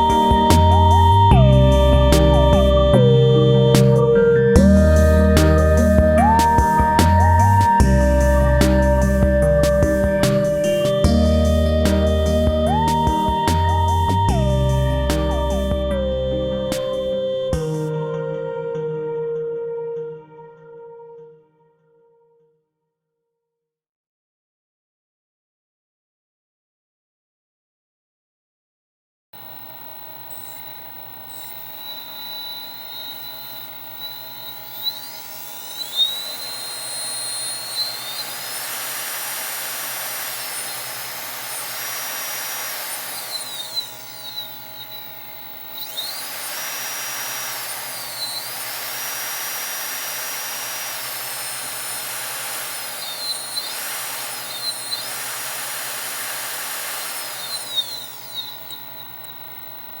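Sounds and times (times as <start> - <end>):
electric motor whine: 0.0 - 17.9, 29.4 - 60.0.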